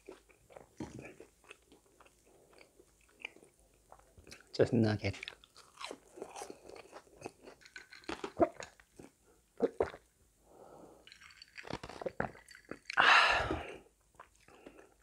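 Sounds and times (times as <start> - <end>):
chewing with crunches: 0.0 - 10.1, 11.0 - 13.0, 13.6 - 15.0
gulping a drink: 8.2 - 8.8, 9.6 - 10.1.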